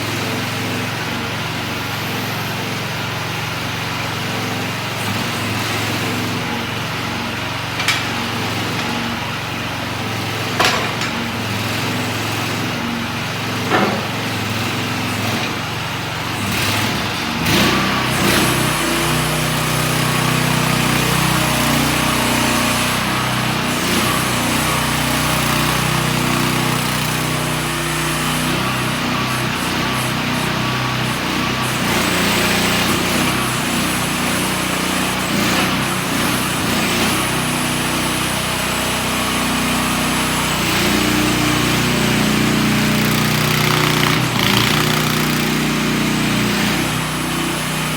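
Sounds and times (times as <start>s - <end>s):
mini excavator engine running: 0.0s - 47.9s
sharp knocks: 10.6s - 11.3s, 13.7s - 14.3s.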